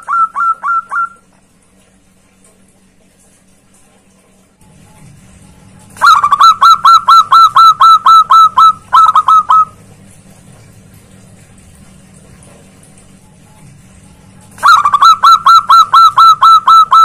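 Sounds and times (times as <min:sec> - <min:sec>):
dove calling: 0:00.0 - 0:01.3, 0:06.0 - 0:09.8, 0:14.6 - 0:17.0.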